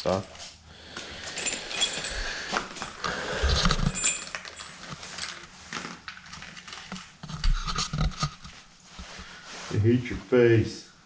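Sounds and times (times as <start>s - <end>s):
metal hardware clinking: 1.2s - 5.5s.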